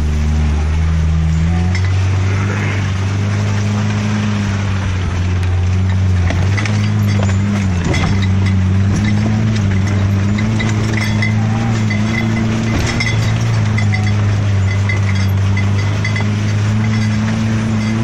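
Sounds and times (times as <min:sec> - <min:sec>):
engine running at steady revs: 0:00.0 - 0:18.0
light clicks and rattles: 0:05.2 - 0:18.0.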